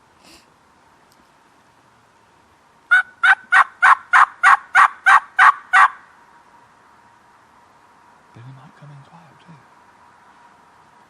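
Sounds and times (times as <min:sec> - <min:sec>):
turkey call yelps: 0:02.9 - 0:06.1.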